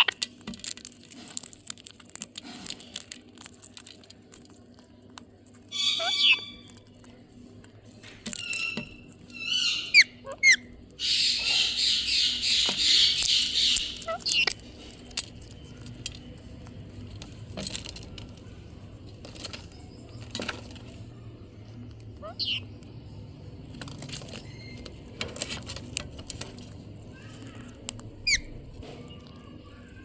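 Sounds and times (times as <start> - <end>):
parrot gliding calls: 5.7 - 6.7
parrot clicks and chirps: 8.4 - 14.6, 27.8 - 28.6.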